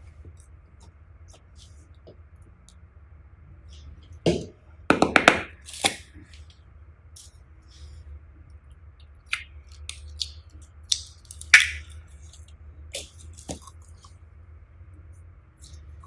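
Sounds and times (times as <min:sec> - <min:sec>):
slime squished by hand: 0:10.9 - 0:12.4.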